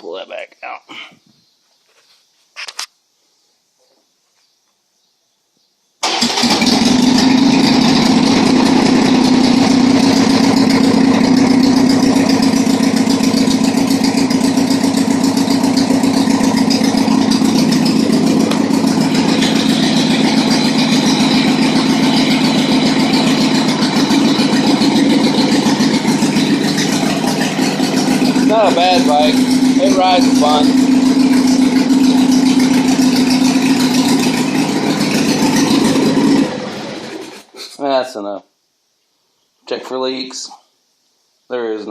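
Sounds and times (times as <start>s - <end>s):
motorcycle engine idling: 6.6s - 37.6s.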